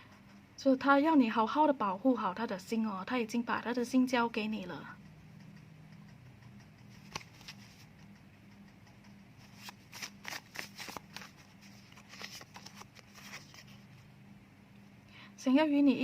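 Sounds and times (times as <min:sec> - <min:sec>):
faint steady hum: 0:00.0 - 0:16.0
cards flicking and tapping: 0:05.0 - 0:13.8.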